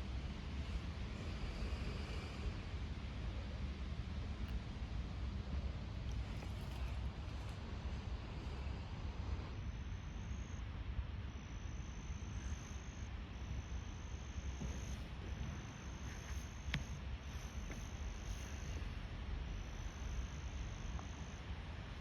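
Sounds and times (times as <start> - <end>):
insects trilling: 9.6 - 10.6, 11.3 - 22.0.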